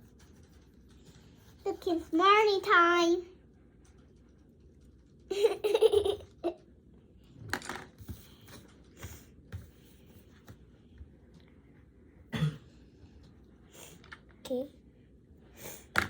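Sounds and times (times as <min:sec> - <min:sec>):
child giggling: 0:05.3 - 0:06.6.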